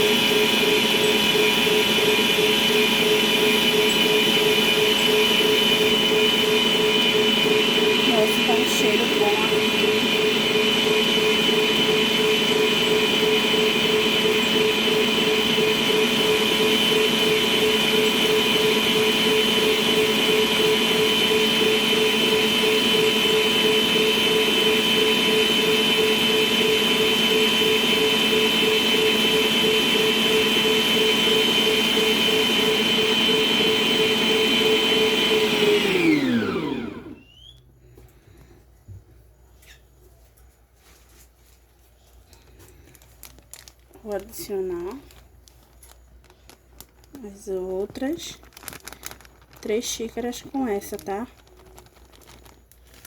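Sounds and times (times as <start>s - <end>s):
stand mixer motor whining: 0.0s - 37.5s.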